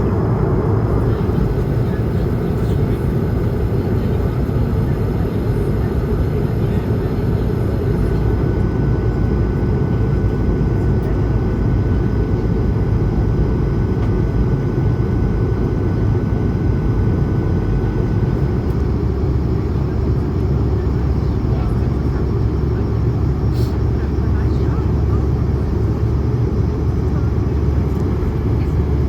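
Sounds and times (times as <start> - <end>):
faint steady whine: 0.0 - 11.3
jet engines and airflow rumbling: 0.0 - 29.0.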